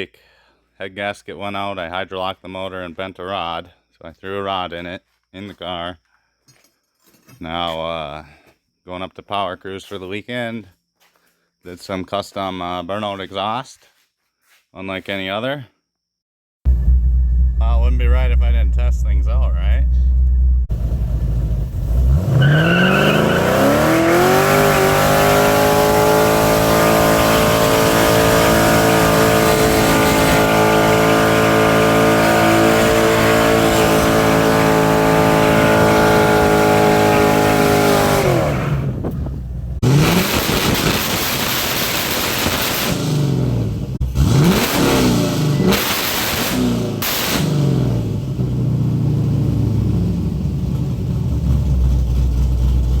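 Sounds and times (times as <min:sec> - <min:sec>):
car engine revving: 0:16.7 - 0:53.0.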